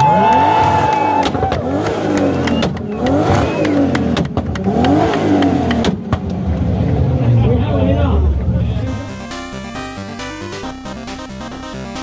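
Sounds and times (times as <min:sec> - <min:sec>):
exhaust pops: 0:00.0 - 0:06.9
car engine revving hard: 0:00.0 - 0:07.5.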